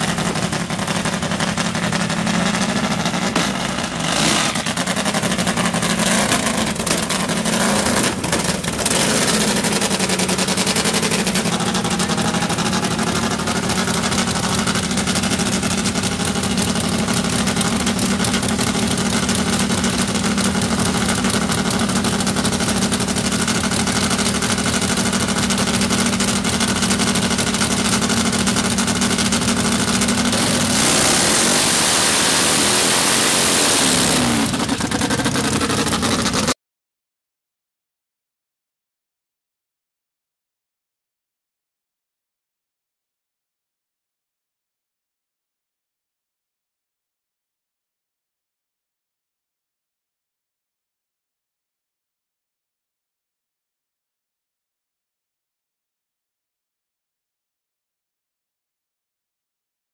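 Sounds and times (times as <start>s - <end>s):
drag bike engine popping: 0.0s - 36.6s.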